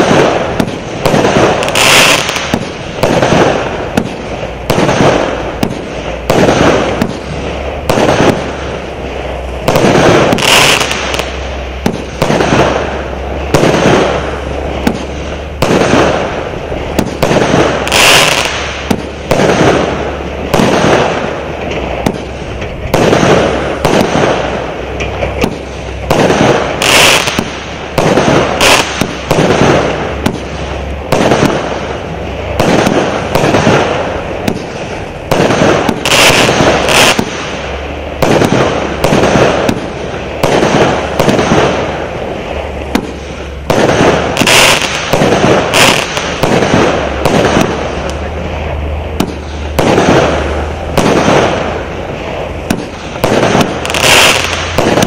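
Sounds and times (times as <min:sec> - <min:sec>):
firework shots banging: 0:00.0 - 0:55.0.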